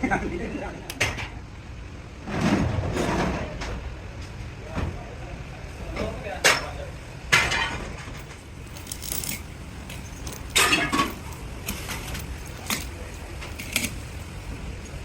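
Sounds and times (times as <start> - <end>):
steady low hum: 7.0 - 15.0
metal pieces clanking: 7.5 - 15.0.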